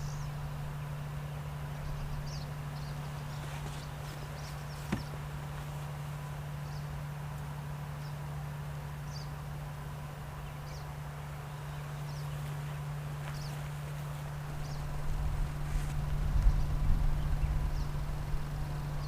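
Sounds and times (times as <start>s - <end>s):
steady low hum: 0.0s - 19.0s
wind rumbling on microphone: 14.4s - 19.0s.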